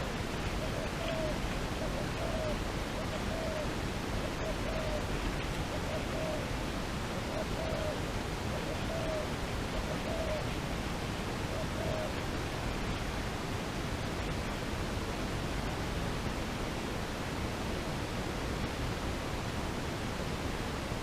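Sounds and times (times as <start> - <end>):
dove cooing: 0.0 - 12.6
steady hiss: 0.0 - 21.0.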